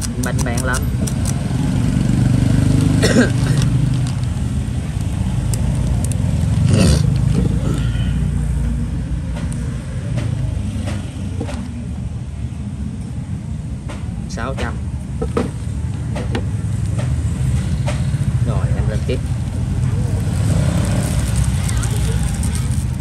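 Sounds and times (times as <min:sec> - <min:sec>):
sharp clicks: 0:00.0 - 0:01.6
passing traffic engine rumble: 0:00.0 - 0:23.0.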